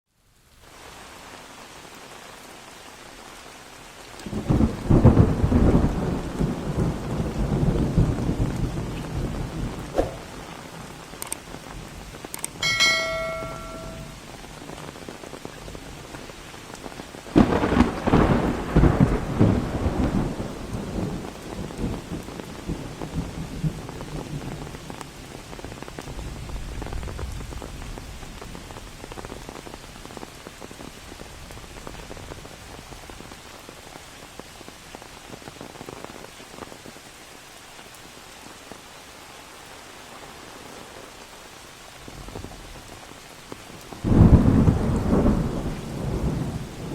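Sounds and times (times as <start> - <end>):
steady rain: 0.1 - 46.9
thunderclap rumbling: 4.3 - 12.2, 17.3 - 24.6, 44.0 - 46.9.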